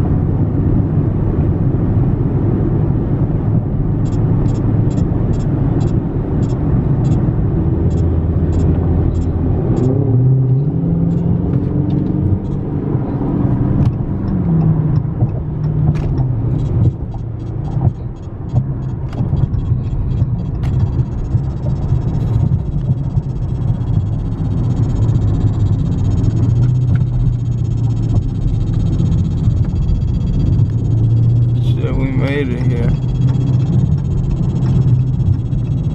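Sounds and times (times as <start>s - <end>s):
car engine revving on the move: 0.0s - 35.9s
regular clicking: 13.8s - 35.9s.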